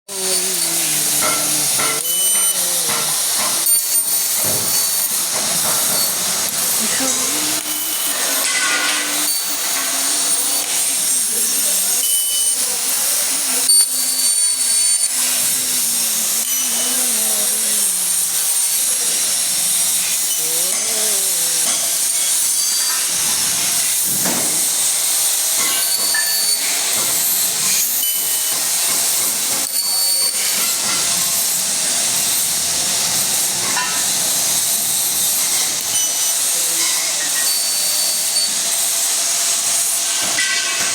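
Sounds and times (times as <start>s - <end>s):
machine whine: 0.1s - 40.9s
hiss of gas jetting: 0.2s - 26.1s.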